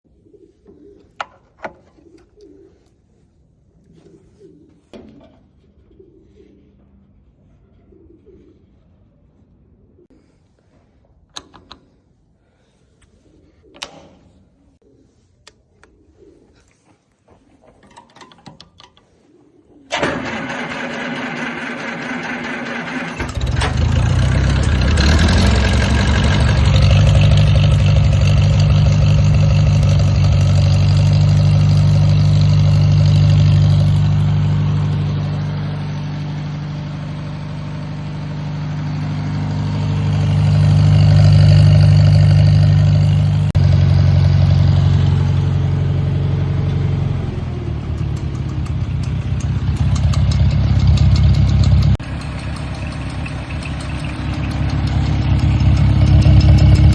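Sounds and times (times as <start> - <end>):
tractor engine starting and running: 19.9 - 56.9.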